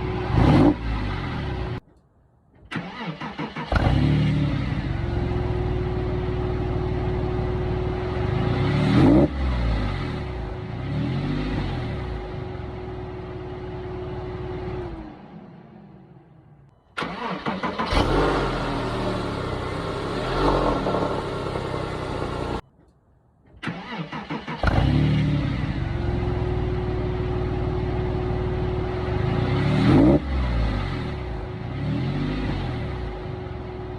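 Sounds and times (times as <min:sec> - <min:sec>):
car engine cranking and revving: 0:00.0 - 0:01.8, 0:02.6 - 0:22.6, 0:23.5 - 0:33.9
car engine idling: 0:17.0 - 0:22.6.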